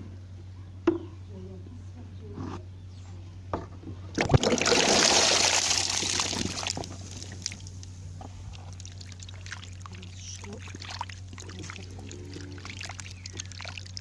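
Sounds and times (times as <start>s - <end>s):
water pouring with splash: 4.2s - 7.8s.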